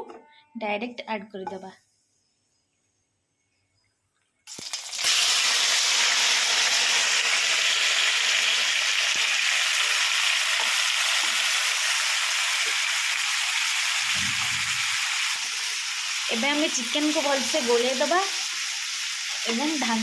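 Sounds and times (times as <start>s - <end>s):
chicken sizzling in hot oil: 4.5s - 20.0s.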